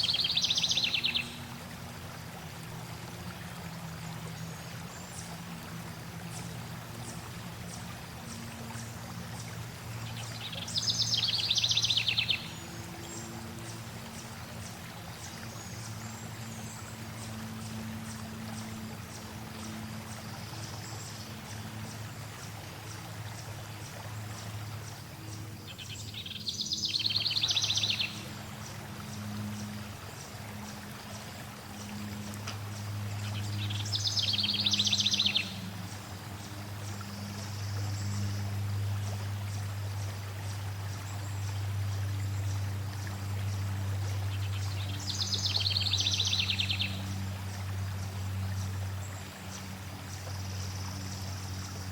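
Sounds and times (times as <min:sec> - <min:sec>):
bird trilled song: 0:00.0 - 0:01.4, 0:10.1 - 0:13.8, 0:25.6 - 0:28.2, 0:33.2 - 0:35.6, 0:44.4 - 0:47.1
songbirds: 0:00.0 - 0:51.9
stream water flowing: 0:00.0 - 0:51.9.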